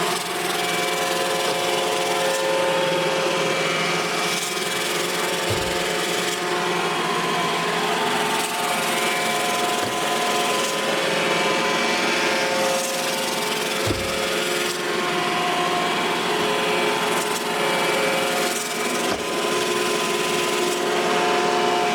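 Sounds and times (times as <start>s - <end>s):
robot vacuum whirring: 5.4s - 6.3s
low thumps: 5.5s - 6.0s, 13.8s - 14.4s.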